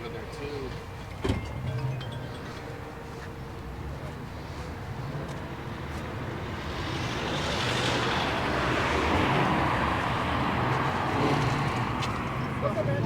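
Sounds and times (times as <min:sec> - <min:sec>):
tyre and road noise: 0:00.0 - 0:13.0.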